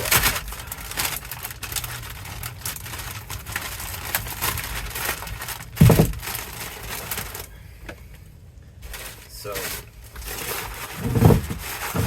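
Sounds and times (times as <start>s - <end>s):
rain pattering: 0.0s - 7.5s.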